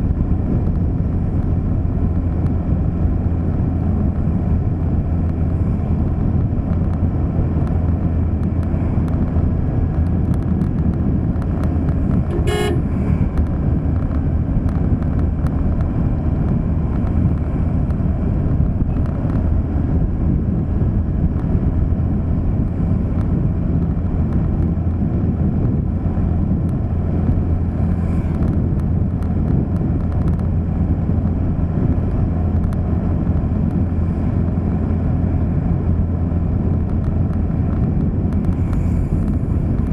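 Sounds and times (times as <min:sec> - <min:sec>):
vehicle engine and road rumble: 0:00.0 - 0:39.9
car horn toot: 0:12.3 - 0:13.1.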